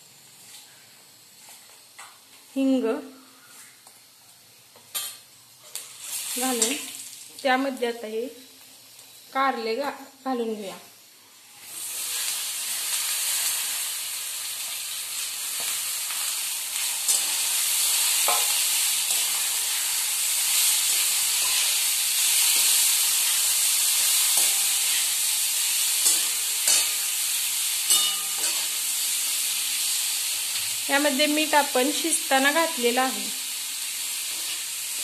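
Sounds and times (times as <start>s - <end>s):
vegetables sizzling in hot oil: 0.0s - 35.0s
metal spatula scraping a pan: 18.2s - 25.2s, 25.9s - 27.1s, 27.9s - 28.8s, 34.3s - 35.0s.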